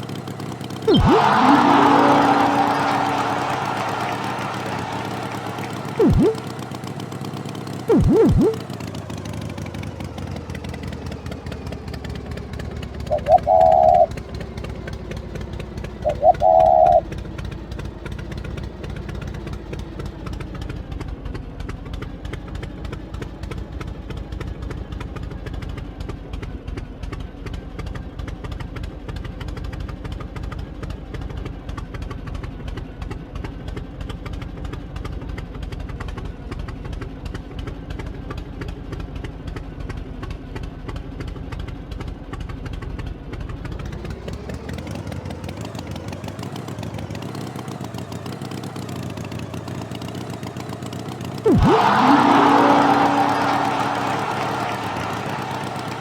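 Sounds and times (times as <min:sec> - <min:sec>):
tractor engine running: 0:00.9 - 0:09.6.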